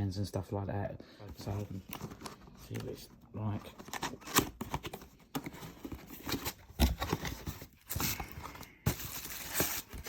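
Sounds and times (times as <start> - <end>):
boxed fridge being handled: 3.8 - 10.0.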